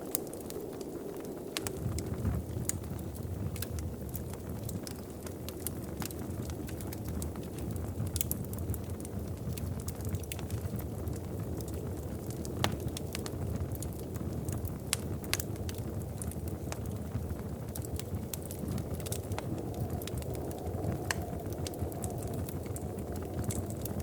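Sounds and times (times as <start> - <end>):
wood fire crackling and popping: 0.0 - 24.0
steady low rumble: 16.0 - 24.0.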